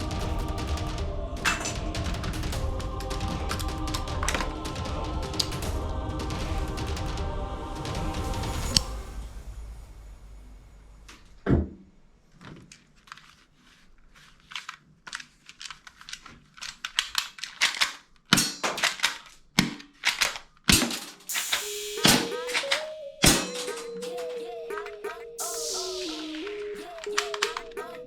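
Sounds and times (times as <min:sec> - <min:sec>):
toy guns clicking: 0:14.4 - 0:23.8, 0:26.2 - 0:27.8.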